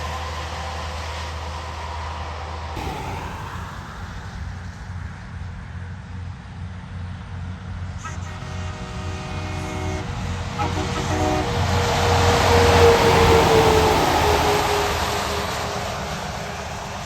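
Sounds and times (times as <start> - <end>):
truck rumbling: 2.8 - 10.4, 11.1 - 17.0
truck air horn blasts: 8.0 - 16.1.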